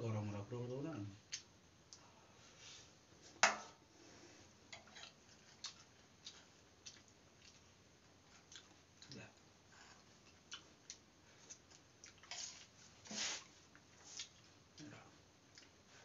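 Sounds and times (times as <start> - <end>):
person chewing food: 5.0 - 9.2, 9.9 - 12.8, 13.4 - 14.7, 15.4 - 15.8.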